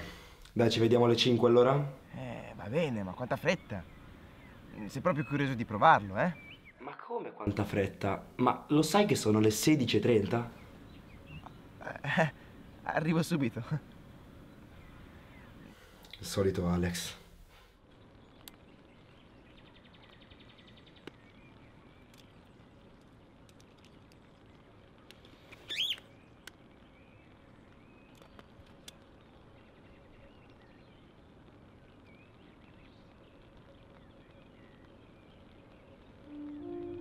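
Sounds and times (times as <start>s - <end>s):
faint background noise: 0.0s - 37.0s
faint clicks: 15.6s - 16.2s, 18.4s - 18.7s, 20.8s - 26.7s, 27.6s - 29.5s.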